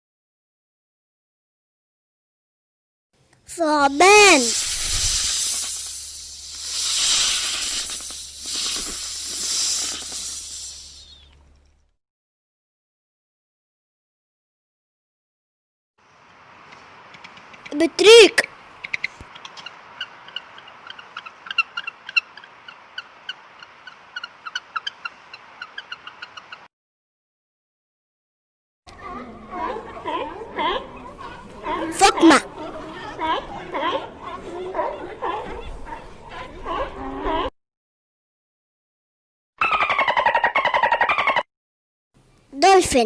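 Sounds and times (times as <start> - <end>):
snake hissing: 3.9 - 11.3
penguins peeping and chirping: 17.2 - 26.6.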